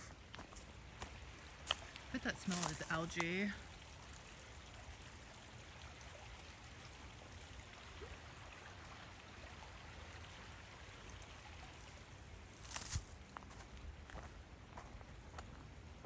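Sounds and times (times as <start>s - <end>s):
creek water running: 0.0s - 16.0s.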